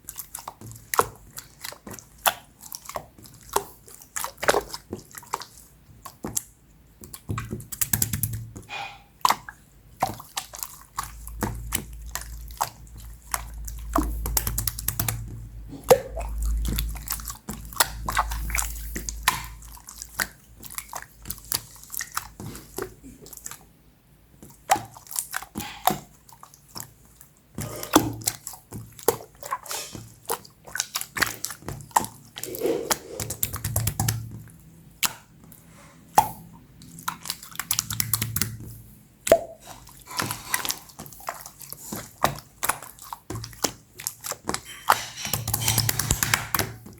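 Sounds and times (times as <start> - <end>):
wet clicks and squishes: 0.0 - 46.9
low rumbling bumps: 11.2 - 19.3.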